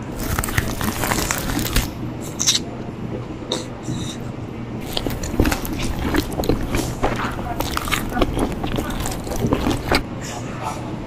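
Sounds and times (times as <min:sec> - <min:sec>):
plastic utensils scraping paper cup: 0:00.0 - 0:02.0, 0:04.8 - 0:10.0
person chewing and eating: 0:00.0 - 0:02.6, 0:04.8 - 0:10.0
slurps: 0:00.0 - 0:02.6, 0:04.8 - 0:10.0
steady low hum: 0:04.7 - 0:10.0.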